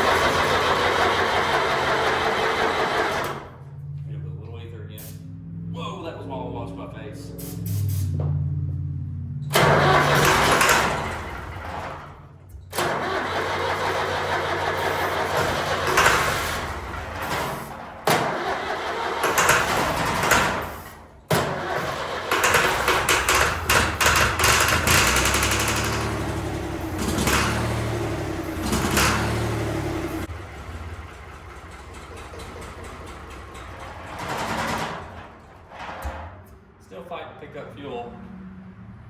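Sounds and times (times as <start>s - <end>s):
diesel engine cranking on starter: 0.0s - 4.1s, 9.4s - 36.6s.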